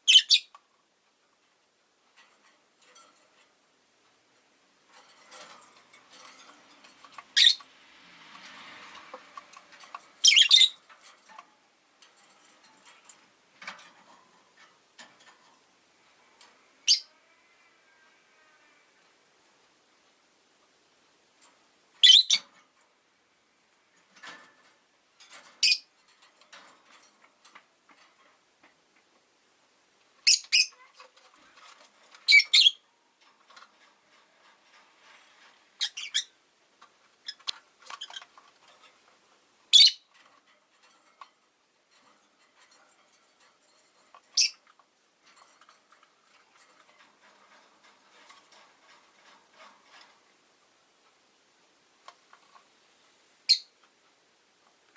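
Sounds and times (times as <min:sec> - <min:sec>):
birds chattering quietly: 0:00.0 - 0:00.6
lovebirds chirping: 0:00.0 - 0:00.6, 0:07.2 - 0:07.7, 0:10.2 - 0:10.8, 0:22.0 - 0:22.5, 0:30.2 - 0:30.9, 0:32.2 - 0:32.8, 0:35.8 - 0:36.4, 0:39.7 - 0:40.1, 0:44.4 - 0:44.6, 0:53.5 - 0:53.8.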